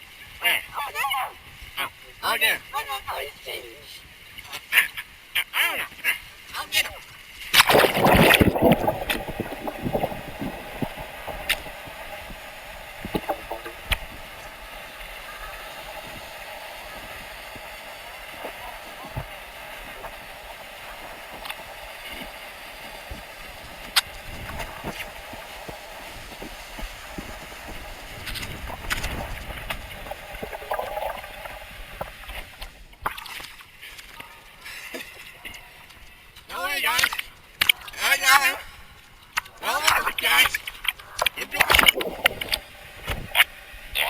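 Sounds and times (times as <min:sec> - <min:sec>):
water sloshing and splashing: 0:07.5 - 0:34.1, 0:39.3 - 0:43.5.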